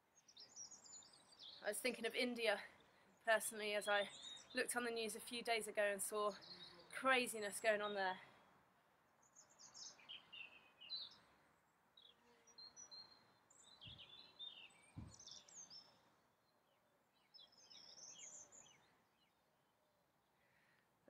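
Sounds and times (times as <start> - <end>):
songbirds chirping and warbling: 0.0 - 20.8
soft low thumps: 14.9 - 15.2.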